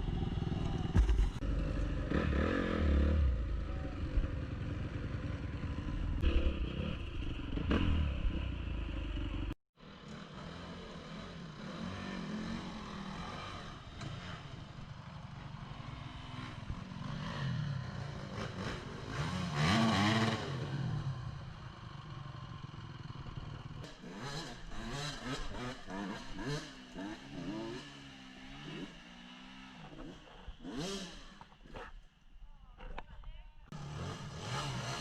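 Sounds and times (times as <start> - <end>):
dirt bike engines revving: 0.0 - 32.2, 33.7 - 35.0.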